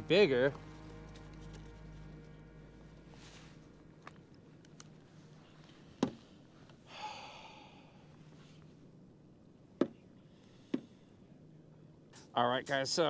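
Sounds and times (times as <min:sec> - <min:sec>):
faint low hum: 0:00.0 - 0:13.0
breathy exhale: 0:06.8 - 0:08.6, 0:10.3 - 0:11.2.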